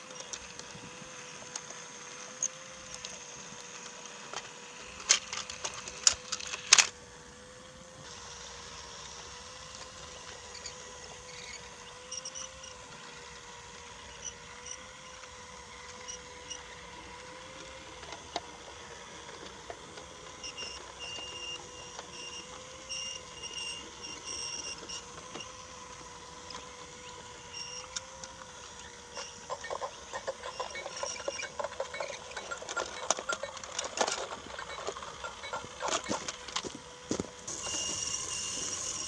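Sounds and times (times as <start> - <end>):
wheels clicking over track: 0.0 - 7.3, 8.1 - 39.0
toy train motor humming: 0.0 - 39.0
short high squeaks: 20.4 - 25.8, 26.5 - 28.1, 28.7 - 36.5.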